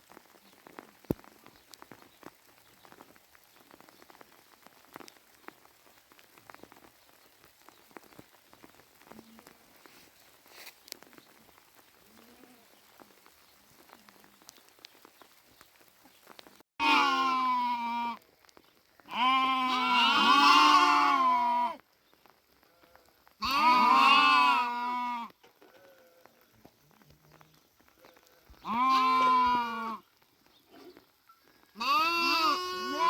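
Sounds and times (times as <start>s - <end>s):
sheep bleating: 16.8s - 18.2s, 19.1s - 21.8s, 22.7s - 26.5s, 28.0s - 30.0s, 31.8s - 33.0s.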